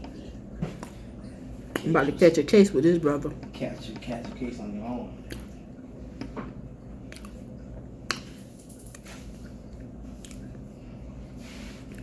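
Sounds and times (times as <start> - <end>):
person chewing: 5.1 - 12.0.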